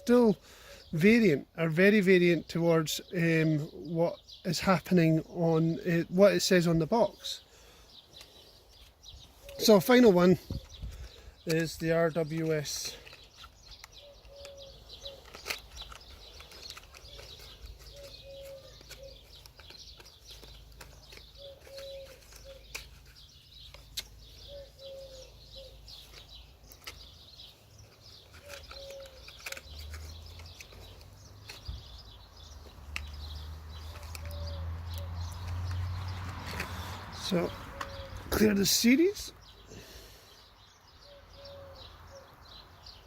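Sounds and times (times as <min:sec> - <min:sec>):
birdsong: 0:00.0 - 0:43.0
dove cooing: 0:13.9 - 0:15.6, 0:16.3 - 0:22.8, 0:24.3 - 0:26.3, 0:28.3 - 0:30.2, 0:33.2 - 0:35.8, 0:36.4 - 0:38.5, 0:41.0 - 0:42.3.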